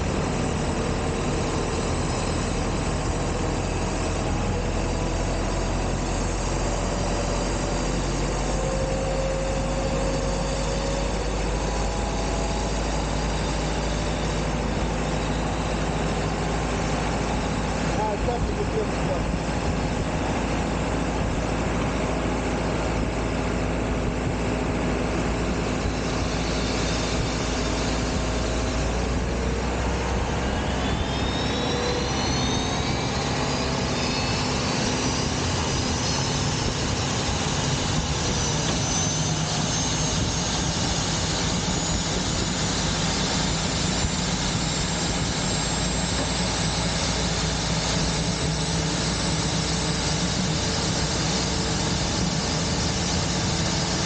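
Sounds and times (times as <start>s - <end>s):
jet and ramp roar: 0.0s - 54.0s
jet engine whine rising: 0.0s - 54.0s.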